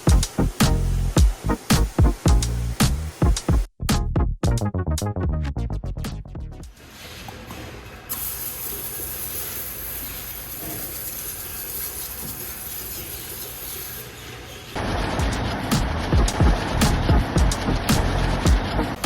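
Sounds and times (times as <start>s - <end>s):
water spray hissing: 0.0s - 3.6s, 8.1s - 13.6s.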